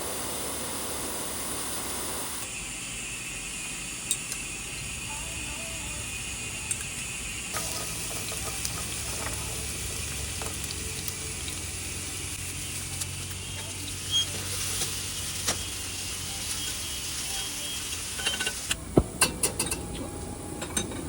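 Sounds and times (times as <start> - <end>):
food sizzling in a frying pan: 7.5 - 18.8.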